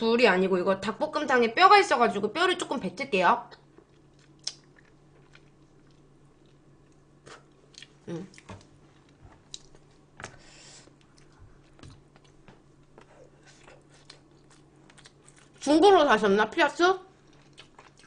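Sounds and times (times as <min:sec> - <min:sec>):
chewing chicken close-up: 0:17.2 - 0:18.0.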